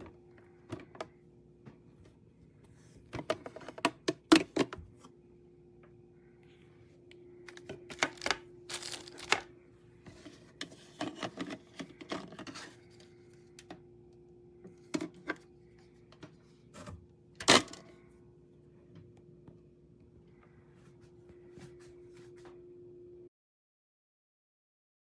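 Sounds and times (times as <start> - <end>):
steady low hum: 0.0 - 23.3
plastic parts clattering: 7.5 - 9.5.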